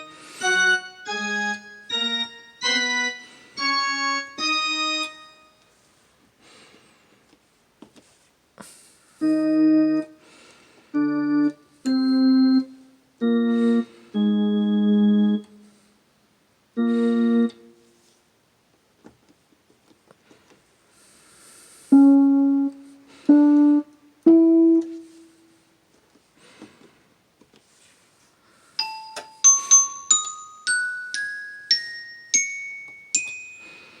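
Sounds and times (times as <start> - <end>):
electronic keyboard organ chords: 0.0 - 5.5, 9.2 - 10.3, 10.9 - 15.8, 16.7 - 17.8, 21.9 - 25.3.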